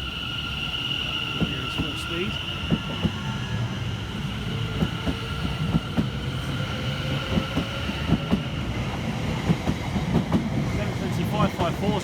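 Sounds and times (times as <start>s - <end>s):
train wheels clacking over rail joints: 9.4s - 10.5s.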